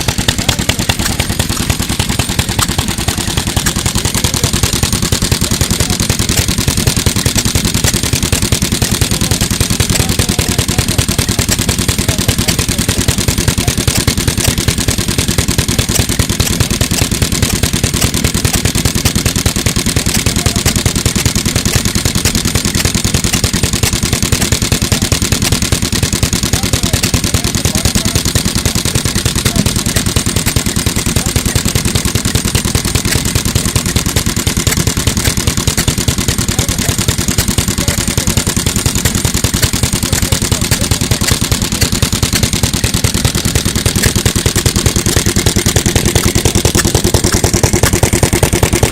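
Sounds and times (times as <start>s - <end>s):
stationary engine running: 0.0s - 48.9s.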